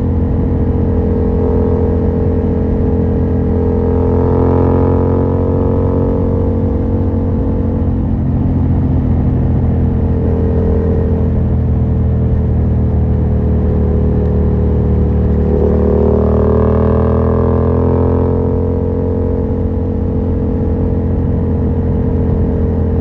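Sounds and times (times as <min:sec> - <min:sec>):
motorcycle engine cruising: 0:00.0 - 0:23.0.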